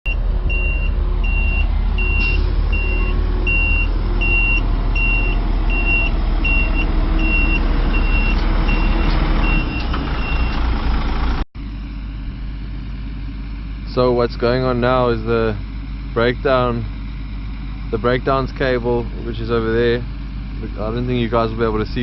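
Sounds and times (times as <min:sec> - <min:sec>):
reversing alarm beeping: 0:00.1 - 0:10.7
diesel engine running: 0:00.1 - 0:22.0.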